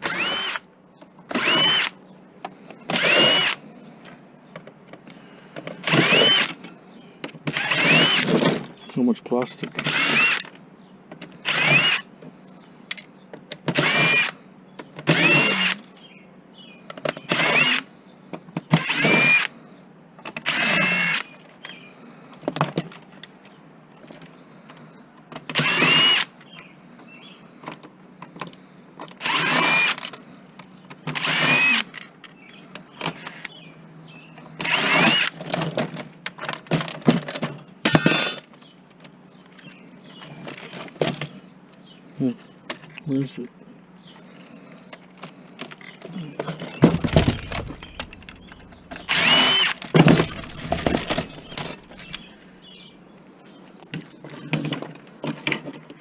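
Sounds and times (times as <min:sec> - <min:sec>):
power screwdriver whining: 0:00.0 - 0:00.6, 0:01.3 - 0:02.0, 0:02.9 - 0:03.6, 0:05.8 - 0:06.6, 0:07.5 - 0:08.3, 0:09.8 - 0:10.5, 0:11.4 - 0:12.1, 0:13.7 - 0:14.4, 0:15.1 - 0:15.8, 0:17.3 - 0:17.9, 0:18.8 - 0:19.5, 0:20.4 - 0:21.3, 0:25.5 - 0:26.3, 0:29.2 - 0:30.1, 0:31.1 - 0:31.9, 0:34.6 - 0:35.4, 0:46.8 - 0:52.3.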